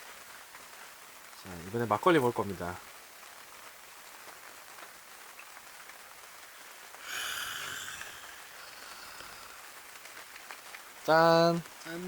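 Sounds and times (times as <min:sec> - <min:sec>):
steady rain falling: 0:00.0 - 0:12.0
louder hiss: 0:06.9 - 0:10.0.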